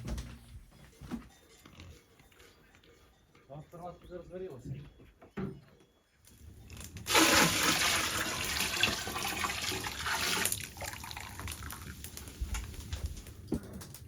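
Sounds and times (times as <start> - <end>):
liquid pouring in a stream: 7.1 - 12.1.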